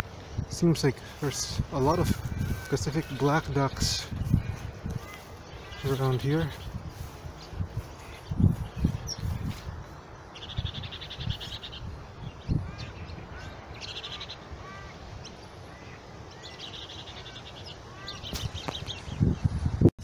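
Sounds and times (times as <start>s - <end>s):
bird chirps: 10.3s - 19.4s.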